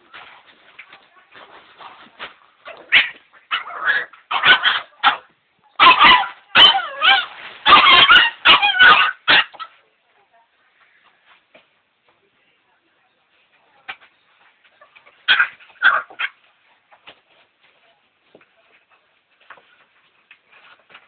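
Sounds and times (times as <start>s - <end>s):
dog yipping and whining: 5.8s - 9.6s.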